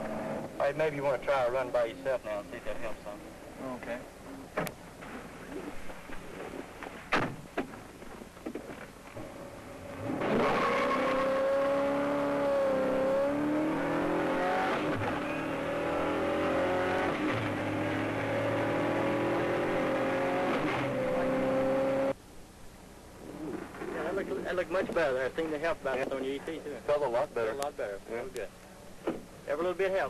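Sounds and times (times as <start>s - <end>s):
car engine accelerating hard: 10.0s - 22.2s.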